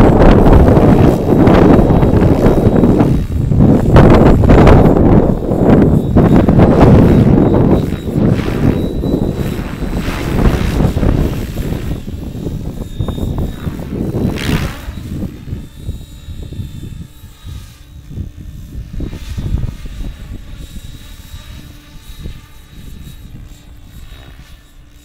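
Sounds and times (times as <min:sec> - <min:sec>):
helicopter rotor blades whooshing: 0:00.0 - 0:25.0
wind buffeting microphone: 0:00.0 - 0:25.0.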